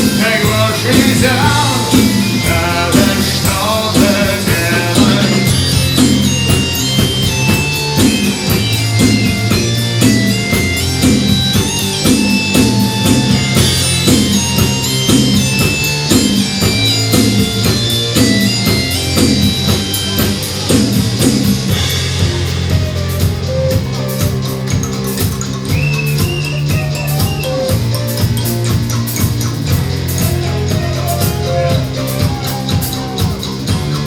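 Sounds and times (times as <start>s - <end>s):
bass guitar: 0.0s - 34.0s
drum kit: 0.0s - 34.0s.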